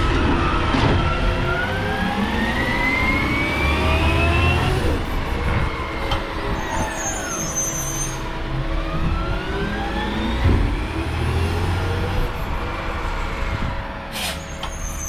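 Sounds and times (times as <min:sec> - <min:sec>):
garbage truck engine revving: 0:00.0 - 0:06.6, 0:08.2 - 0:14.9
high squeal: 0:06.4 - 0:08.3, 0:14.2 - 0:15.0.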